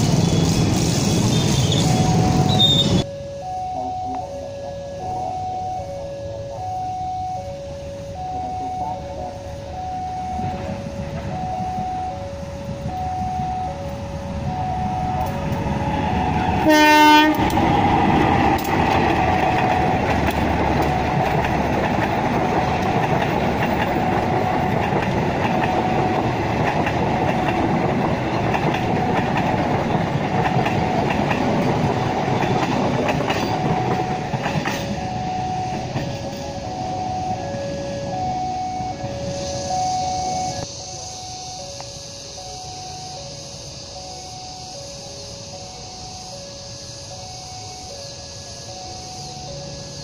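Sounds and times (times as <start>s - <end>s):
two-tone warning alarm beeping: 0.1s - 50.0s
train horn blast: 8.0s - 21.4s
train wheels clattering over rails: 15.1s - 38.0s.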